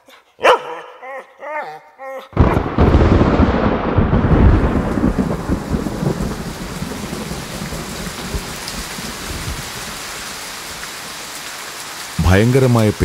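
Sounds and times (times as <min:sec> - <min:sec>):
low rumble of thunder: 0:02.4 - 0:10.0
heavy rain falling: 0:02.4 - 0:13.0.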